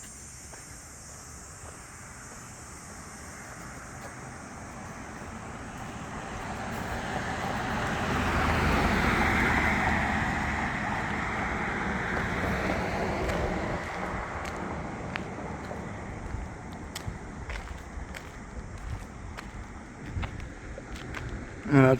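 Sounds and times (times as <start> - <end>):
vehicle driving past: 2.9 - 17.6.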